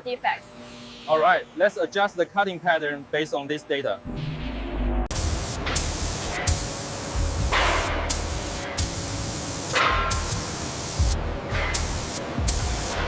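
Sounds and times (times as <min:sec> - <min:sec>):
sawmill machinery hissing: 0:05.1 - 0:13.0.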